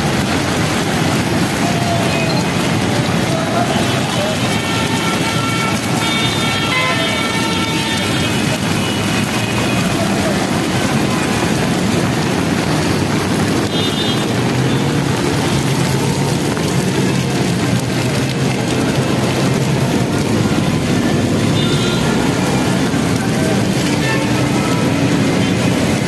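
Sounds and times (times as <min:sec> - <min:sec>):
heavy rain pouring: 0:00.0 - 0:26.0
road traffic: 0:00.0 - 0:26.0.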